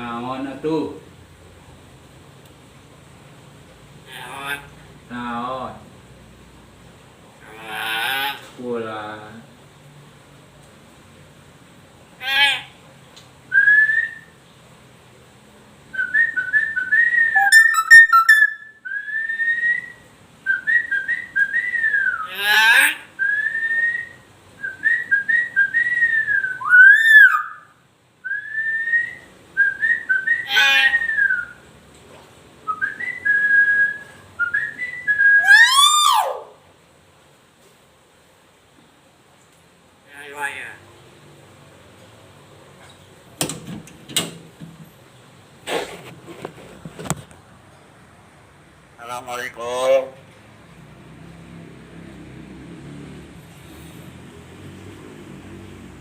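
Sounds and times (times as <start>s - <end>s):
myna whistling: 16.0s - 22.3s, 23.2s - 27.7s, 32.7s - 36.4s
shrill bird calls: 17.3s - 19.1s, 26.6s - 27.8s, 35.3s - 36.5s.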